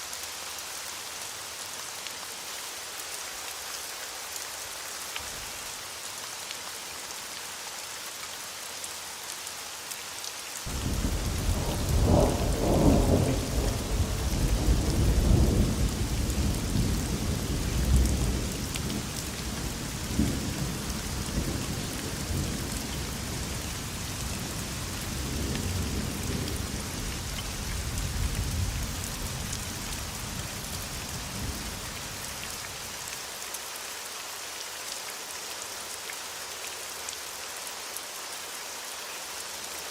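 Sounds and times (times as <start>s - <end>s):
steady rain hiss: 0.0s - 39.9s
thunder rolling: 10.7s - 16.9s.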